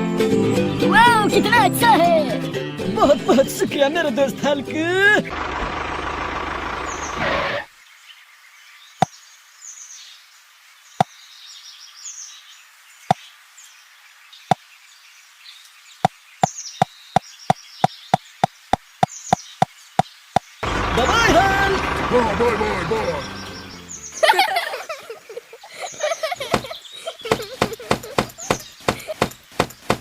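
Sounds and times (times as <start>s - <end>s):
faint bird chirps: 25.1s - 29.9s
sharp hard knocks: 27.3s - 30.0s.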